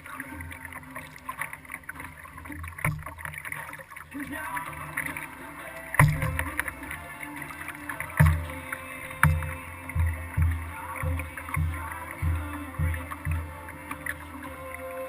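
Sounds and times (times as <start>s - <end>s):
water noise: 0.0s - 15.0s
paddle thuds through kayak hull: 2.4s - 3.5s, 6.0s - 6.7s, 8.1s - 8.5s, 9.2s - 14.1s.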